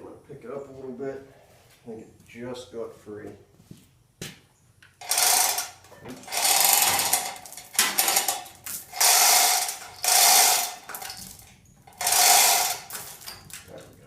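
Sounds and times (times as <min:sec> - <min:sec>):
floor jack grating and rattling: 0:05.0 - 0:13.8.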